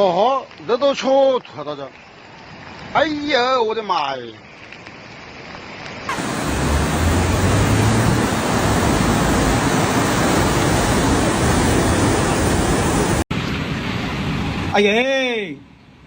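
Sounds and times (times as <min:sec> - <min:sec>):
floodwater rushing: 0:06.1 - 0:14.8.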